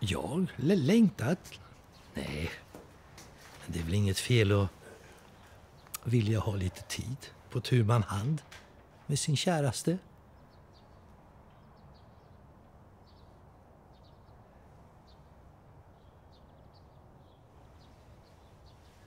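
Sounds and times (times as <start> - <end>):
faint low outdoor rumble: 0.0 - 19.0
faint bird chirps: 10.0 - 19.0.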